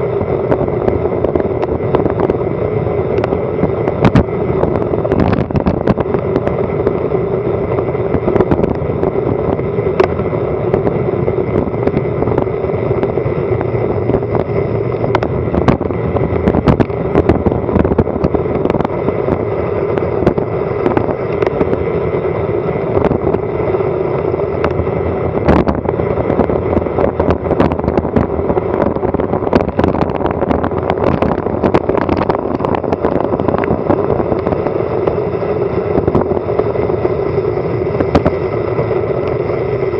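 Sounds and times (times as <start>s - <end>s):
wind and road noise rush: 0.0s - 39.9s.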